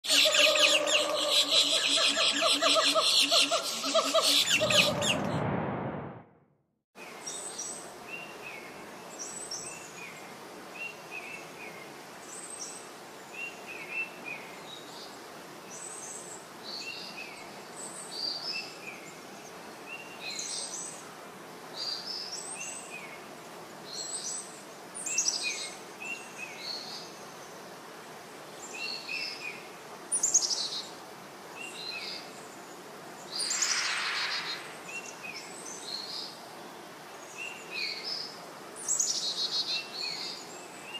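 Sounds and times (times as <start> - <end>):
steady forest hiss: 0.0 - 5.3, 7.0 - 40.9
birds chirping: 0.0 - 5.4
harsh noisy sound: 4.4 - 6.4, 33.4 - 35.1.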